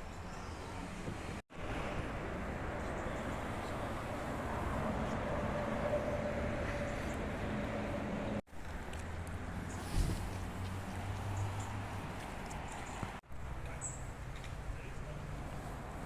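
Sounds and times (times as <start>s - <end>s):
train rushing noise: 1.5s - 8.4s.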